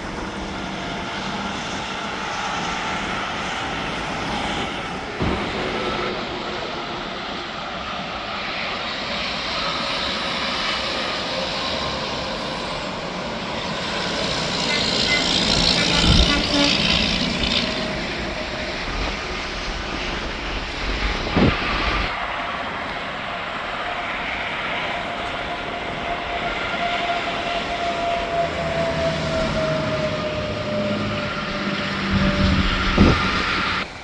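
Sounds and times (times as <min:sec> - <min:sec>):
drawn-out falling whine: 0:00.0 - 0:34.0
traffic rushing past: 0:10.9 - 0:19.7, 0:27.1 - 0:34.0.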